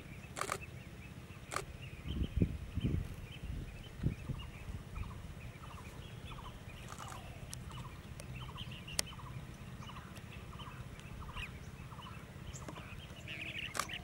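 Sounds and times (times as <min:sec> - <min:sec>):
birds trilling: 0:00.0 - 0:14.0
steady low rumble: 0:00.0 - 0:14.0.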